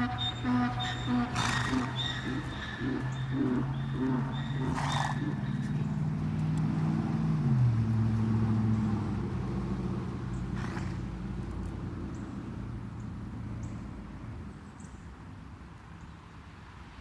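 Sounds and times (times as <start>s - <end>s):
engine running: 0.0s - 12.5s.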